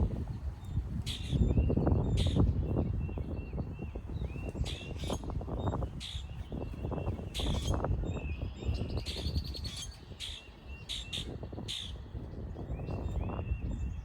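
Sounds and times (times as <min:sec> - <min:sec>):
wind buffeting microphone: 0:00.0 - 0:14.0
birds calling sharply: 0:01.0 - 0:12.1.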